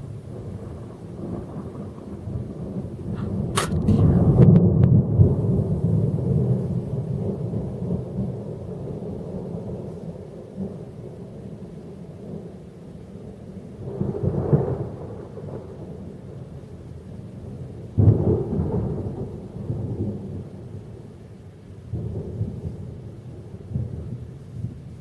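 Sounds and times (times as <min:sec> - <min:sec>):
thunder rumbling: 0:00.0 - 0:21.2, 0:21.8 - 0:25.0
thunder clap: 0:00.4 - 0:06.6.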